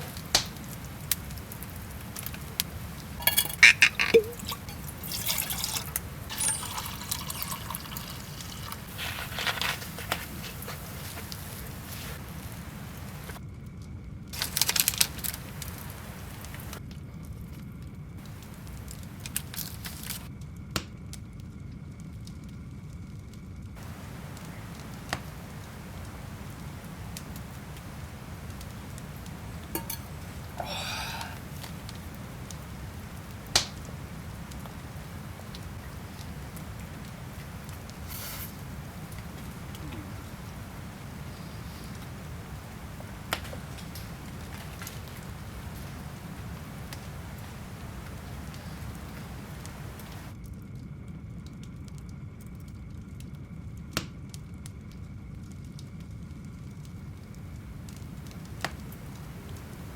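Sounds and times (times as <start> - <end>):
liquid pouring and splashing: 0.0 - 13.4, 14.4 - 16.8, 18.2 - 20.3, 23.8 - 50.3
campfire rumbling: 0.0 - 13.5, 14.3 - 16.8, 18.2 - 20.3, 23.8 - 51.0, 54.4 - 59.9
fire pops and crackles: 0.0 - 59.9.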